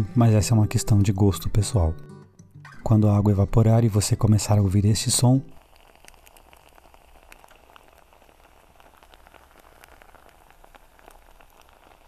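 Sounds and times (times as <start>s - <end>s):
rice sizzling in a pot: 4.0s - 12.0s.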